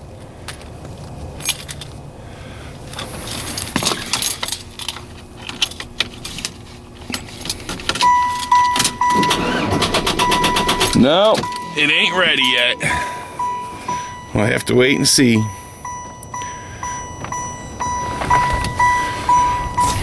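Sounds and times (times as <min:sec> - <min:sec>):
dashboard warning chime: 0:07.9 - 0:20.0.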